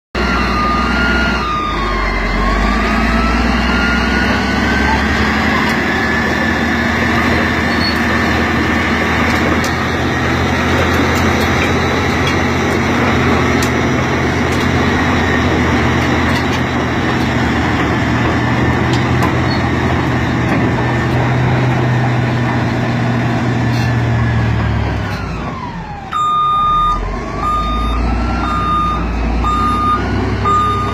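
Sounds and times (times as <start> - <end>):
bulldozer diesel engine running: 0.2 - 30.9
reversing alarm beeps: 26.1 - 30.9.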